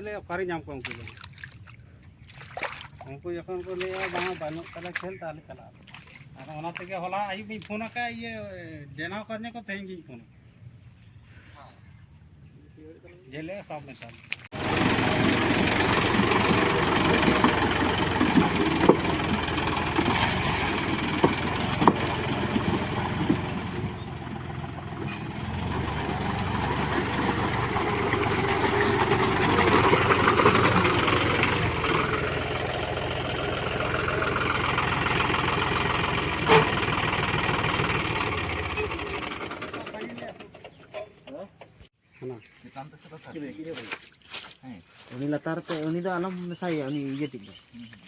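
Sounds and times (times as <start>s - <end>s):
diesel tractor engine running: 14.5s - 41.9s.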